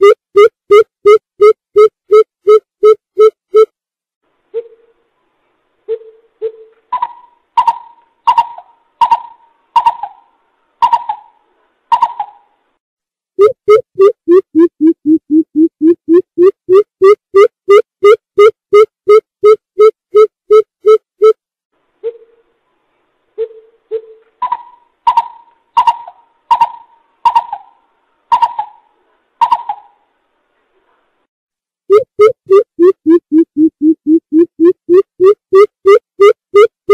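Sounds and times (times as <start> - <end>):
bird hooting: 23.4 - 28.8.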